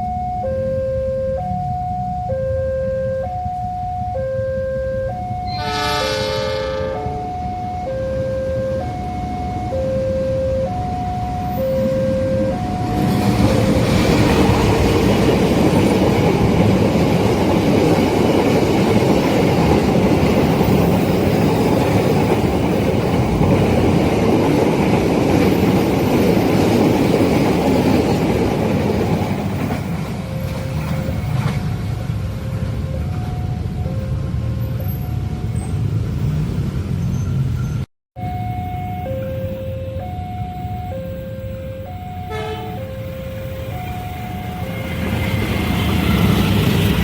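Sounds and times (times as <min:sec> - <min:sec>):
level crossing alarm two tones: 0:00.0 - 0:14.4, 0:29.8 - 0:35.8, 0:38.2 - 0:46.6
train wheels on rails: 0:12.4 - 0:37.8, 0:42.3 - 0:47.0.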